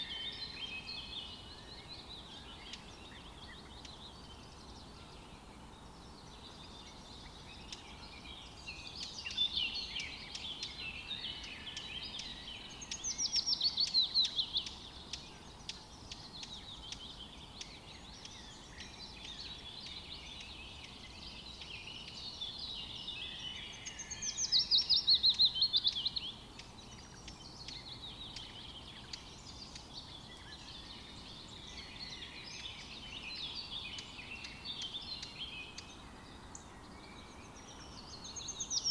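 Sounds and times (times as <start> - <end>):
birds chirping and singing: 0.0 - 38.9
faint steady hiss: 0.0 - 38.9.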